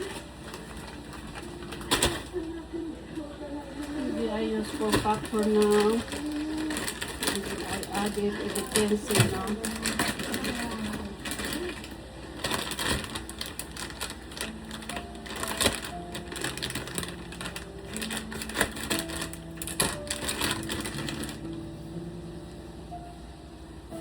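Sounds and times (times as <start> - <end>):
faint background music: 0.0 - 24.0
rapid clicking and rattling: 4.6 - 21.5.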